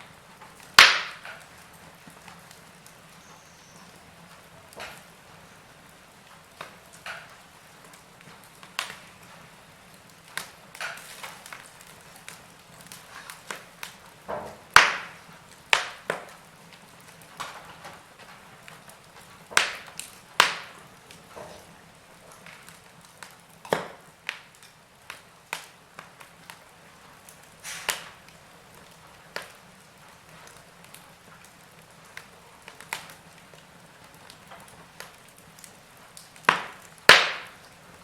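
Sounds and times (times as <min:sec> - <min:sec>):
faint steady hiss: 0:00.0 - 0:38.0
fire crackling and popping: 0:00.0 - 0:38.0.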